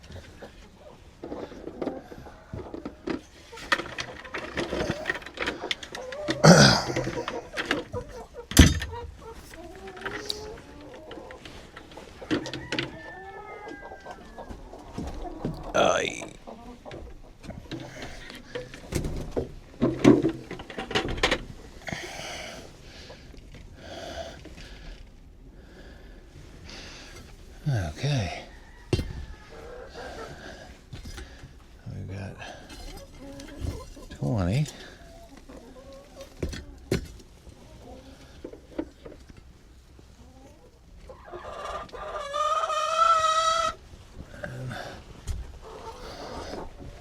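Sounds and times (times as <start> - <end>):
knocks and clatter in nest boxes: 1.2 - 13.1, 16.9 - 21.6, 28.0 - 29.3, 36.2 - 37.4
rooster crowing: 12.3 - 14.5.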